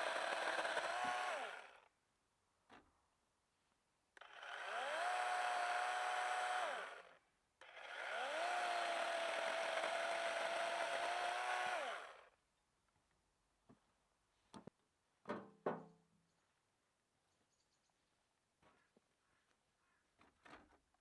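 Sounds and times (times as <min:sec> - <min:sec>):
chainsaw motor whining: 0:00.0 - 0:01.9, 0:04.2 - 0:12.4.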